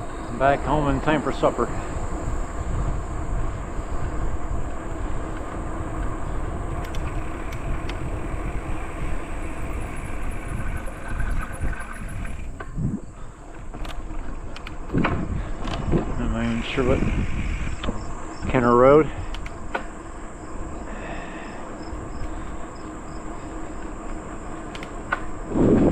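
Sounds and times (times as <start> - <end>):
high-pitched insect drone: 0.0 - 13.4, 16.3 - 19.3
wind buffeting the microphone: 0.0 - 20.9, 21.8 - 25.9.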